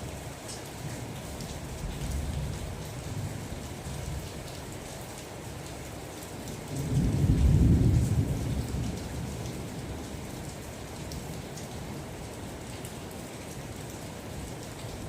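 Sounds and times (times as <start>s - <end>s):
steady rain: 0.0s - 15.0s
low rumble of thunder: 6.6s - 12.3s.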